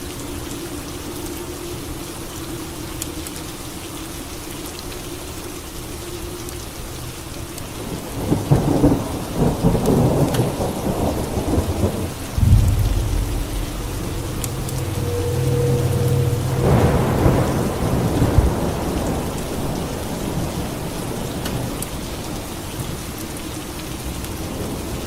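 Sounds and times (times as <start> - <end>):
steady rain: 0.0 - 25.0
thunder crackling and rumbling: 8.2 - 21.8.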